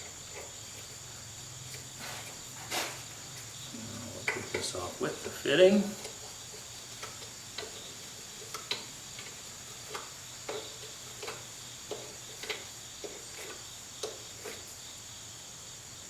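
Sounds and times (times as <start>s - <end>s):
faint high hum: 3.1s - 6.1s.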